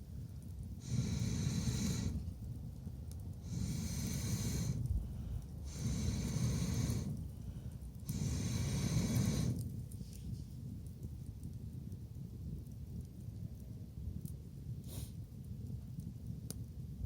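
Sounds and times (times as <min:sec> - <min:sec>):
person blowing onto a fire: 0:00.8 - 0:02.3, 0:03.4 - 0:05.0, 0:05.6 - 0:07.3, 0:08.1 - 0:09.8.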